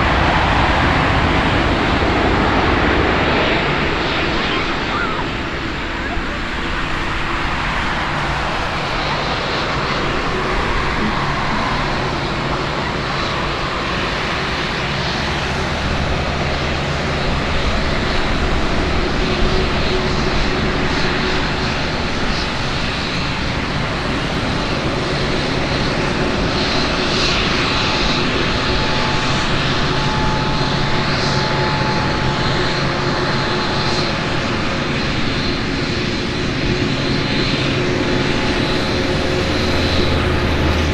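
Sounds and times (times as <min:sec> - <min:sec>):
jet engine rush: 0:00.0 - 0:40.9.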